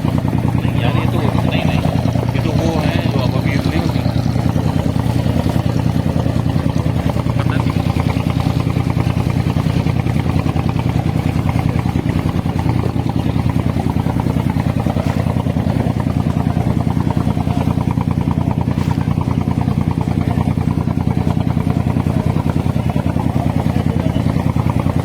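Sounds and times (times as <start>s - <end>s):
boat diesel engine chugging: 0.0s - 25.0s.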